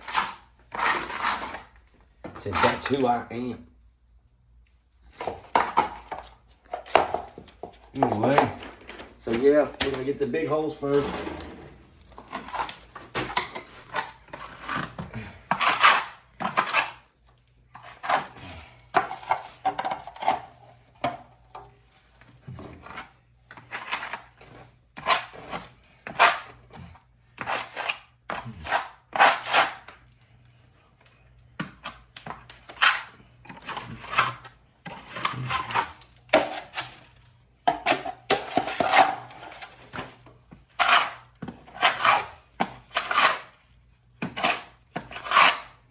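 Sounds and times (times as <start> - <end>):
plastering knife scraping and tapping: 37.7 - 43.5, 44.2 - 45.7.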